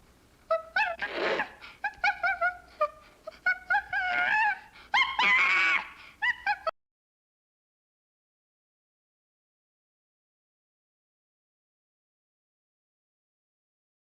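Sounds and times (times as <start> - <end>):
animal wavering cries: 0.5 - 2.6, 3.5 - 6.7
animal yelping and whining: 0.6 - 2.5, 3.7 - 6.6.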